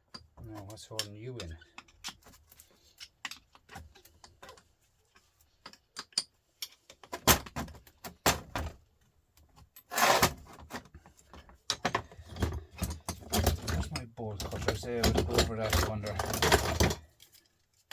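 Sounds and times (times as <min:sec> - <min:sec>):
rattling metal scrape: 0:09.9 - 0:10.4
hand tools clinking on metal: 0:12.8 - 0:17.5.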